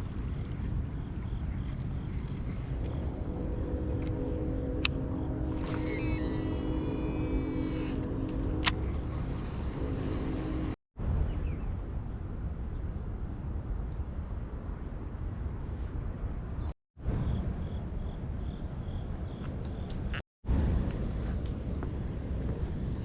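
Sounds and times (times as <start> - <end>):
low outdoor rumble: 0.0 - 11.1.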